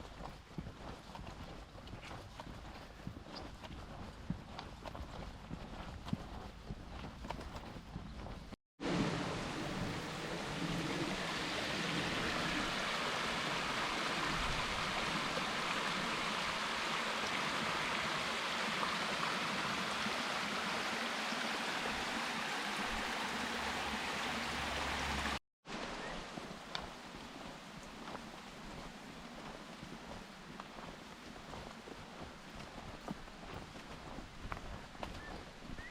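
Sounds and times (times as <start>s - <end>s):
water rushing over rocks: 8.8s - 29.3s.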